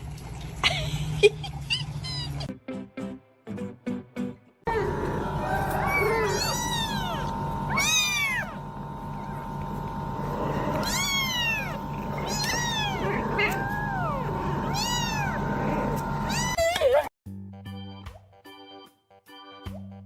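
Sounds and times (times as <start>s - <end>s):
steady background hum: 4.7s - 16.6s
cat meowing: 5.5s - 8.6s, 10.8s - 15.5s, 16.2s - 16.6s.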